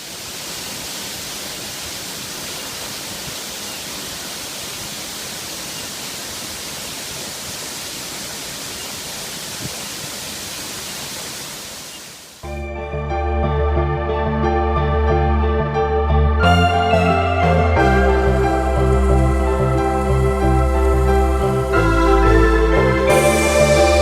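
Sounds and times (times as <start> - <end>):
waterfall rushing into a pool: 0.0 - 12.4.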